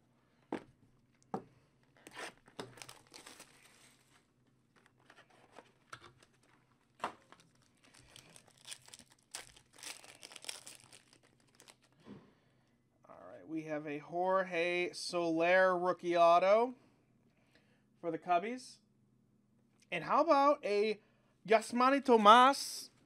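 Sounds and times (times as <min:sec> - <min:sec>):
plastic and foil crinkling: 0:01.9 - 0:12.0.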